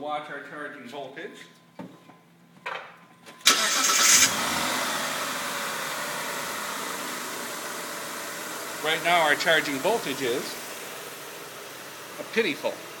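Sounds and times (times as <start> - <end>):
engine cranking: 3.5 - 4.5
car engine idling: 3.5 - 13.0.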